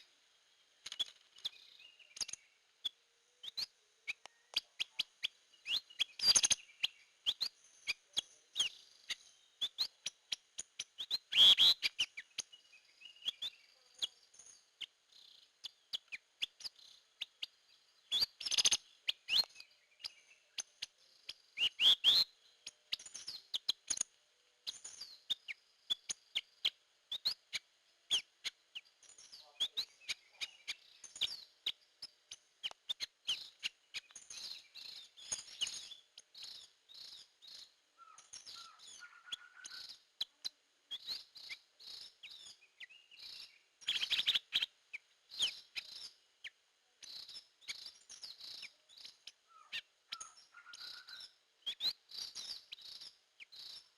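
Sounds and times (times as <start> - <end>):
lower repeated bird notes: 0.0 - 53.9
drongo calling: 25.0 - 53.9.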